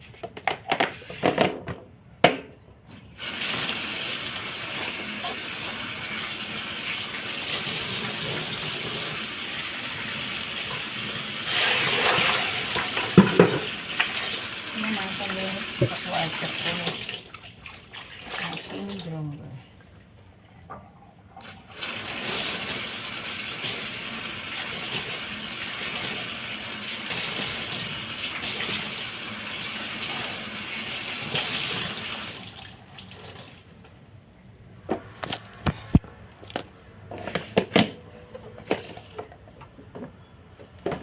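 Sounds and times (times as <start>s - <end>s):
water running hard: 3.2s - 17.3s, 18.1s - 19.4s, 21.7s - 32.7s.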